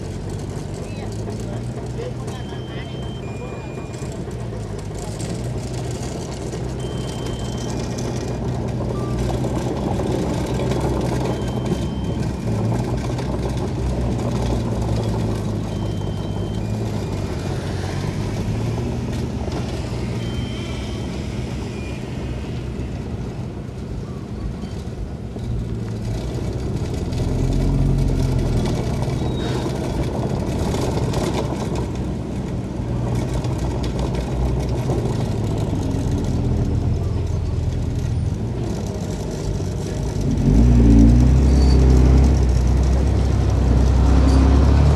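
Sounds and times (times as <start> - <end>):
diesel construction machinery running: 0.0 - 44.9
short high beeps: 2.2 - 4.2, 6.8 - 8.3, 8.9 - 12.4, 15.0 - 18.1, 19.6 - 22.4.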